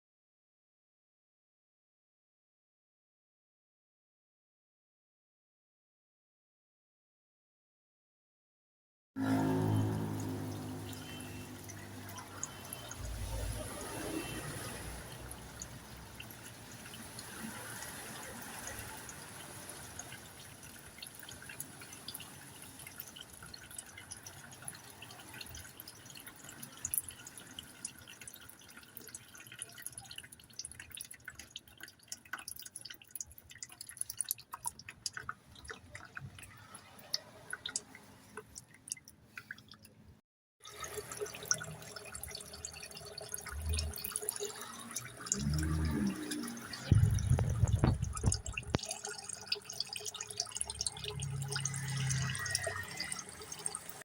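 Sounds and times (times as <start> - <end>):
oil dripping into a pan: 9.3 - 13.6, 14.9 - 39.9, 40.7 - 54.0
heavy low knocks: 46.9 - 48.7.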